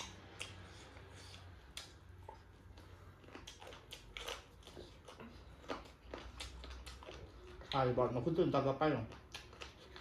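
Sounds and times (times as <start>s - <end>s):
faint chewing crunches: 0.0s - 10.0s.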